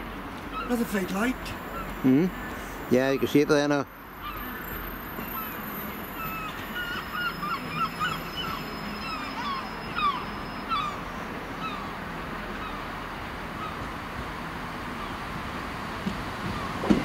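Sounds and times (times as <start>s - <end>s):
train engine humming: 3.8s - 17.0s
squeaky wheel chirps: 4.2s - 11.1s.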